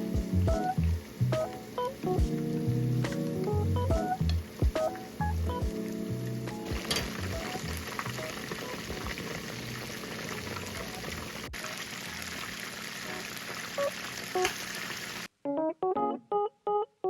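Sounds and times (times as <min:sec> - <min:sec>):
chicken deep-frying in oil: 0:06.2 - 0:15.3.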